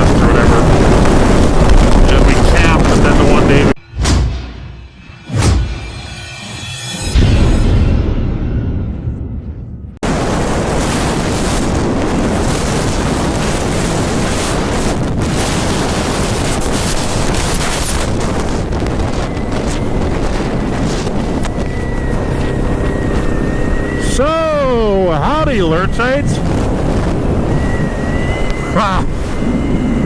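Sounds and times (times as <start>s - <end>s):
wind blasting over microphone: 0.0s - 3.8s, 10.0s - 30.0s
music: 3.9s - 10.0s.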